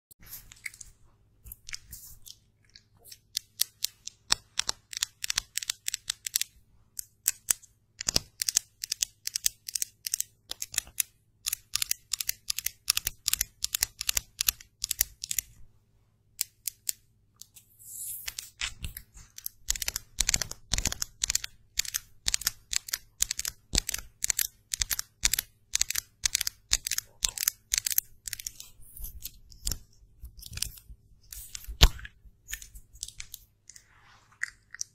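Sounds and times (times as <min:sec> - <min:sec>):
makeup brush scratchy strokes: 0:33.7 - 0:34.6.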